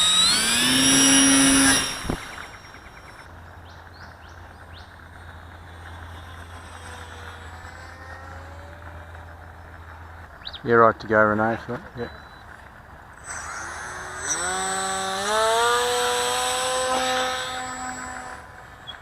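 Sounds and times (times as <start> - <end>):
model plane motor whine: 0.0 - 3.5, 4.3 - 9.6, 13.2 - 19.0
distant motor whine: 0.0 - 19.0.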